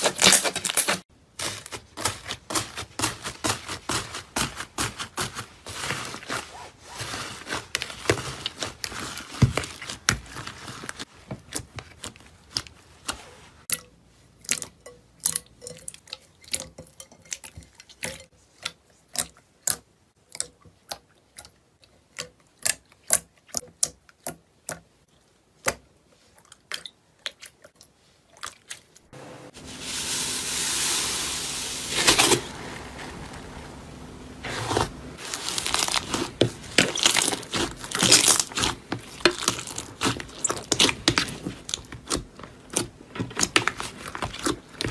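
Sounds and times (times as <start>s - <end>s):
material crackling and crunching: 0.0s - 13.7s, 29.0s - 44.9s.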